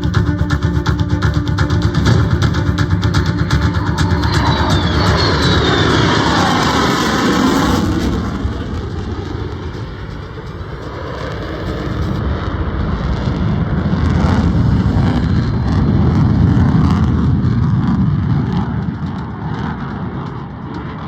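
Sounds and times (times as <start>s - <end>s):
fighter jet roar overhead: 0.0s - 21.0s.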